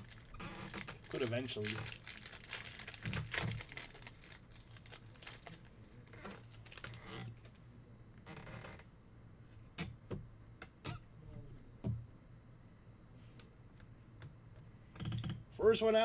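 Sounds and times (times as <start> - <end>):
wrappers crinkling and tearing: 0.0 - 7.1.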